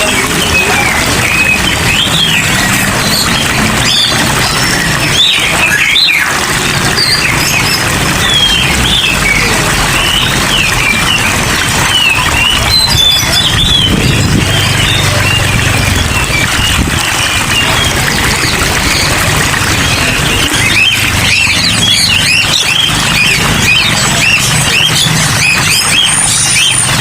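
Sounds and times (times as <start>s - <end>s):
heavy rain: 0.0s - 27.0s
small birds chirping and squawking: 0.0s - 27.0s.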